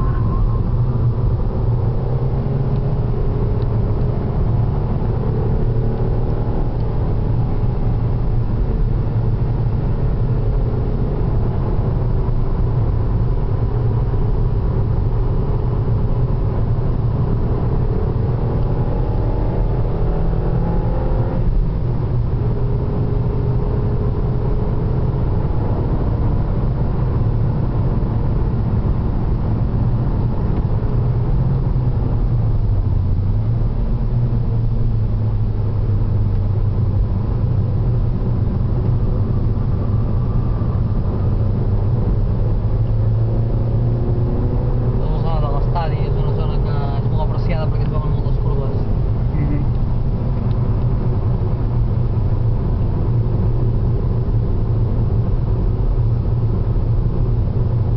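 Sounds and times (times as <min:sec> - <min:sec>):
car engine under load: 0:00.0 - 0:57.9.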